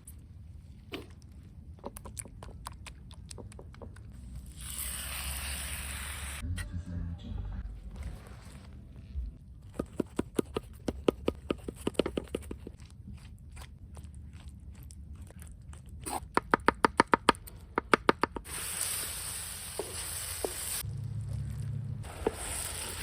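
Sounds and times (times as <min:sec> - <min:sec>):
food sizzling in hot pan: 0:04.8 - 0:06.4, 0:18.5 - 0:20.9, 0:22.0 - 0:23.0.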